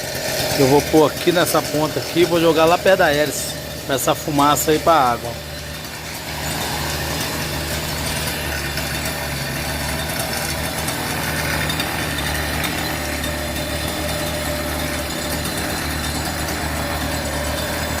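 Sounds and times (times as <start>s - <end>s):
small engine idling: 0.0s - 18.0s.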